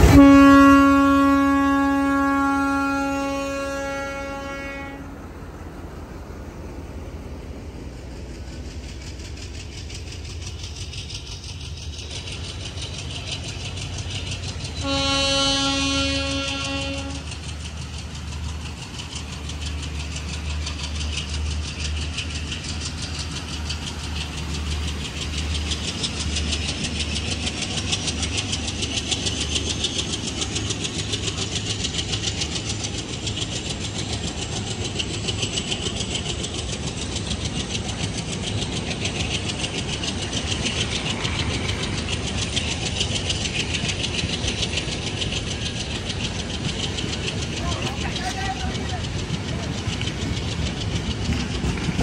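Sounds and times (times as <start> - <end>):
train coaches rumbling past: 0.0 - 52.0.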